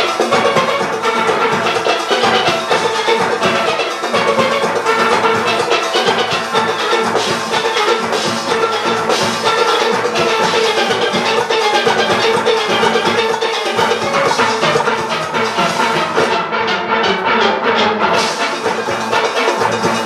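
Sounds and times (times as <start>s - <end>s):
drum kit and percussion: 0.0s - 20.0s
steelpans playing: 0.0s - 20.0s.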